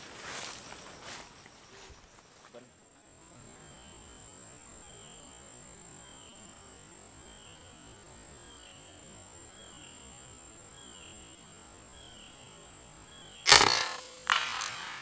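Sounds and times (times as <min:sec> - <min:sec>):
air rifle shot crack: 0:13.5 - 0:15.0
quieter crack: 0:13.5 - 0:15.0.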